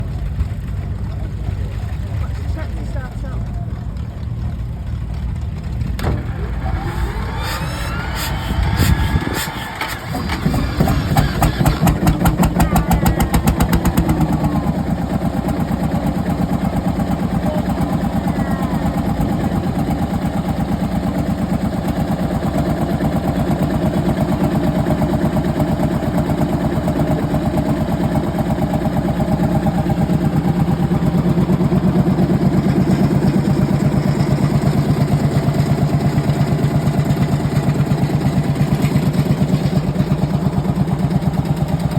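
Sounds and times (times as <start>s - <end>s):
tractor diesel engine starting and idling: 0.0s - 41.9s.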